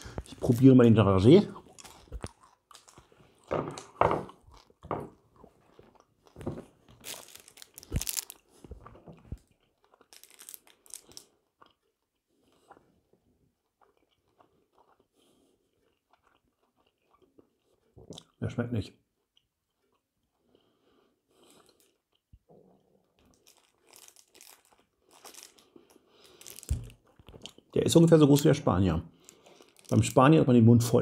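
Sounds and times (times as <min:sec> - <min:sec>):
crunching hard candy: 0:00.0 - 0:12.1, 0:23.0 - 0:28.1, 0:29.2 - 0:30.5.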